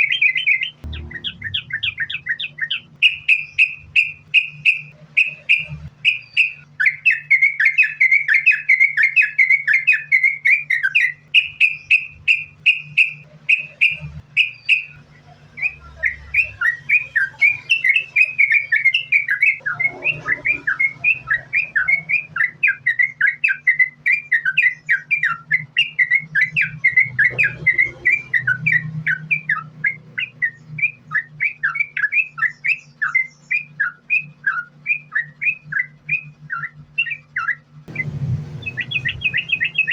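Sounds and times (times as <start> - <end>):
bird singing rapid chirps: 0.0 - 39.9
low hum: 0.7 - 6.0, 37.6 - 39.9.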